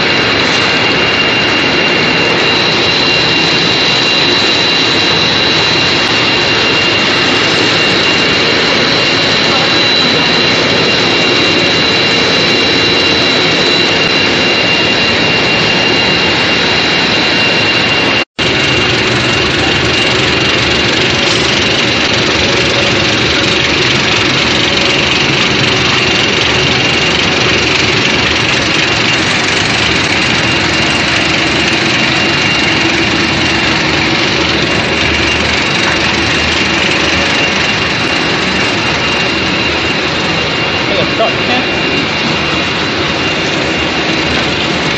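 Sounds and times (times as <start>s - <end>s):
high machine whine: 0.0s - 44.9s
loud steady machine noise: 0.0s - 44.9s.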